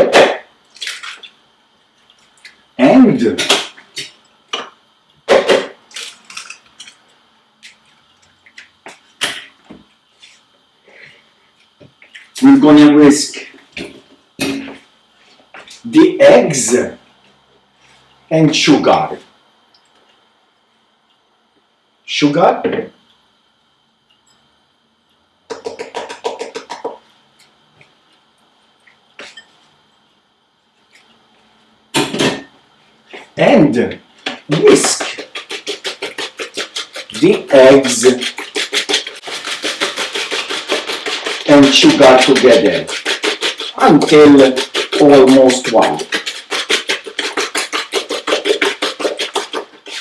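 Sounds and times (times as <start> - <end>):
whisk strokes against bowl: 34.5 - 50.0.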